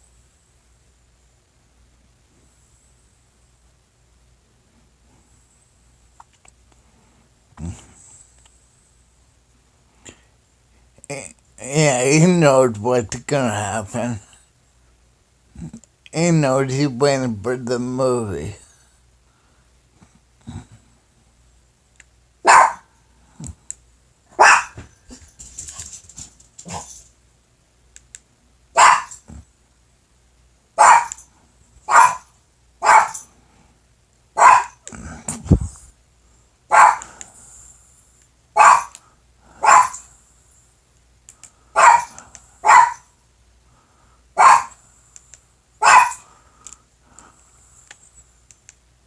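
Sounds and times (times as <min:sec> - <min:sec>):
dog barking: 0:22.4 - 0:22.9, 0:24.3 - 0:24.8, 0:28.8 - 0:29.2, 0:30.8 - 0:31.2, 0:31.9 - 0:33.2, 0:34.4 - 0:34.8, 0:36.7 - 0:37.1, 0:38.6 - 0:39.0, 0:39.6 - 0:40.1, 0:41.8 - 0:43.1, 0:44.4 - 0:44.8, 0:45.8 - 0:46.3.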